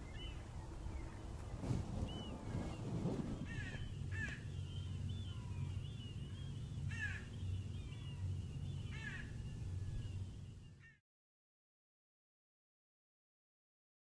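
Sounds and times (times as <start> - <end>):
birds calling: 0.0 - 11.0
faint bird chatter: 0.0 - 11.0
steady low hum: 0.0 - 11.0.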